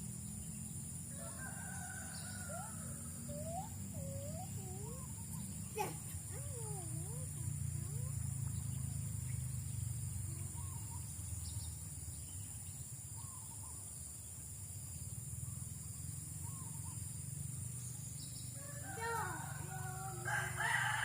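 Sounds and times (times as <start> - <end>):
high insect drone: 0.0 - 21.0
wavering animal calls: 2.1 - 9.1.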